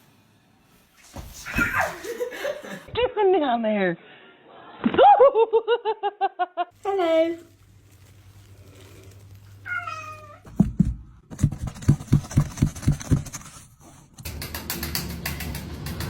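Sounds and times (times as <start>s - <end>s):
cat meowing: 9.6s - 10.5s.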